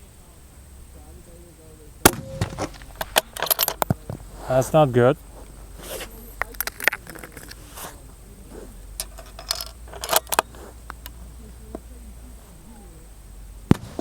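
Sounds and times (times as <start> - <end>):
sharp crack: 2.0 - 8.0, 13.7 - 14.0
metallic clicks and rattles: 2.4 - 4.0, 6.4 - 7.6, 9.0 - 11.2.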